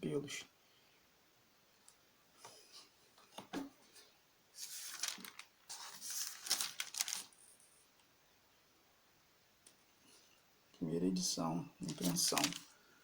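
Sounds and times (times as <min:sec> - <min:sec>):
pages rustling and crinkling: 0:04.6 - 0:07.5, 0:11.8 - 0:12.8.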